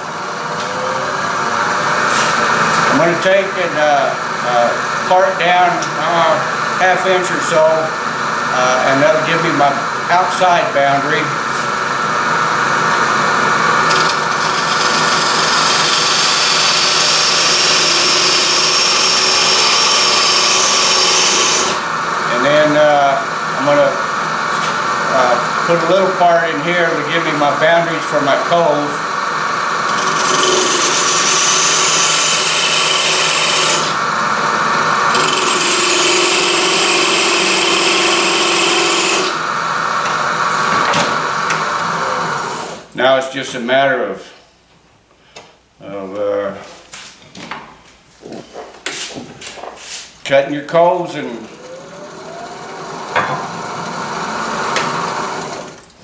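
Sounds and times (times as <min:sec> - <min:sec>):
wood lathe cutting wood: 0:00.0 - 0:42.9, 0:50.8 - 0:55.8
tool scraping wood on lathe: 0:13.7 - 0:22.6, 0:29.8 - 0:40.2.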